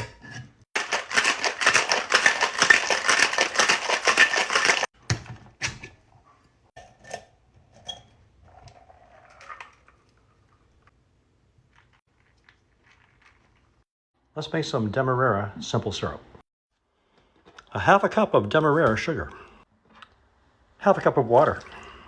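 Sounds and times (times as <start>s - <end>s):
cocktail shaker rattling with ice: 0.8s - 4.9s.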